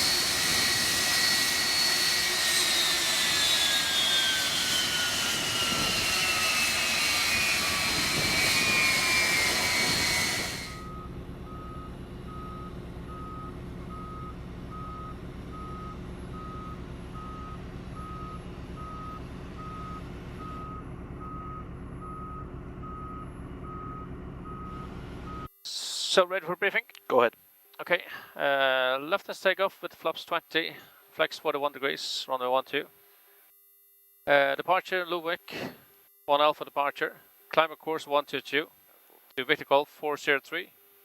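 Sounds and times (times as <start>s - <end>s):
jet engine whining: 0.0s - 10.9s
low hum: 0.0s - 13.3s.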